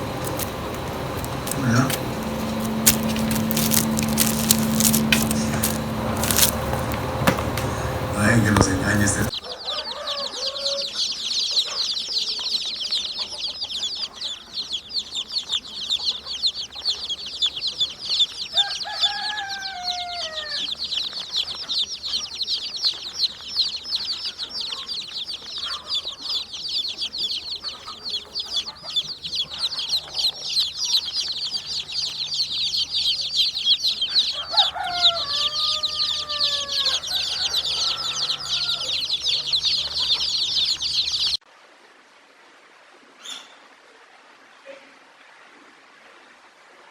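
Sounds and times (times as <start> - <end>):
lower falling chicken calls: 0.0 - 11.8, 18.4 - 22.2, 22.9 - 41.3
chickens peeping: 0.0 - 41.4.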